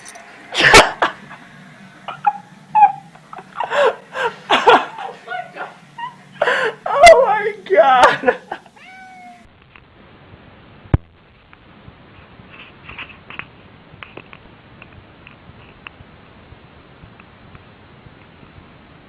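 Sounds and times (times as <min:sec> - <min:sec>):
cat meowing: 0:08.7 - 0:09.5.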